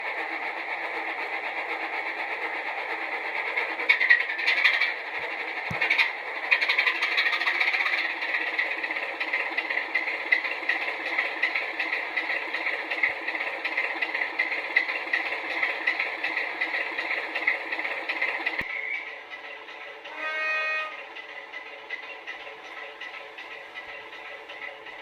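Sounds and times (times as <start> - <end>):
diesel engine through small speaker: 4.2 - 21.1.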